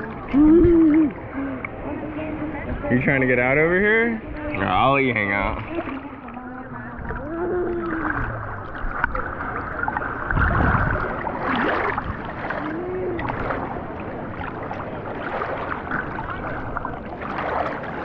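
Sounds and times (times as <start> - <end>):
faint background voices: 0.0 - 16.7
water sloshing and splashing: 0.0 - 18.0.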